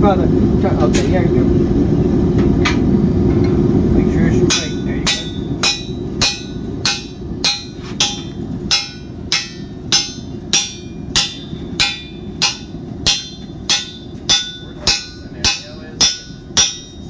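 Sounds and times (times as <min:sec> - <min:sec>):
constant low rumble: 0:00.0 - 0:17.0
hammer striking metal: 0:04.5 - 0:17.0.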